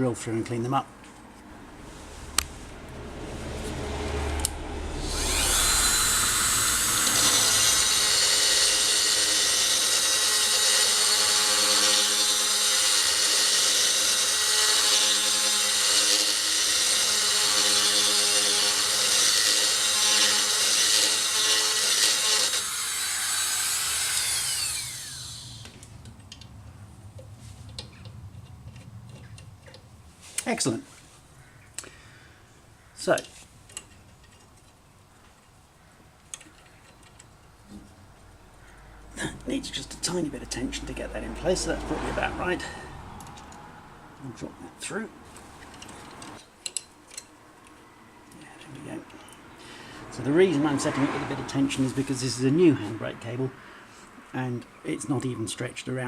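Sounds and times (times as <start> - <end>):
electric drill running: 4.9 - 25.8.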